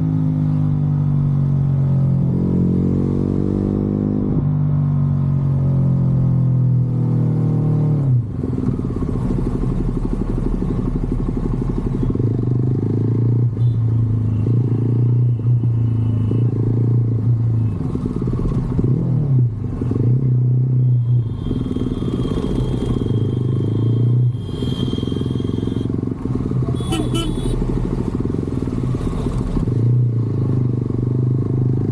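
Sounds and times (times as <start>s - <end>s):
motorcycle engine running: 21.0s - 31.9s.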